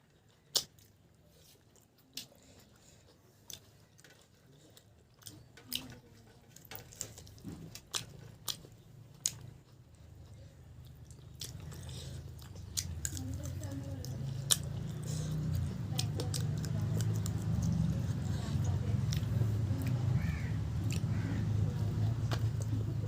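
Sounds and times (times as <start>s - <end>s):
person chewing: 0.1s - 23.0s
mouth clicks and smacks: 0.5s - 1.0s.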